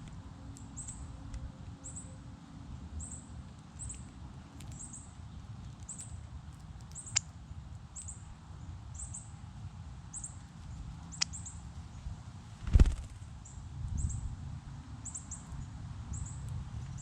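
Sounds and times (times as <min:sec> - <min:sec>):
low rumble: 0:12.6 - 0:13.2.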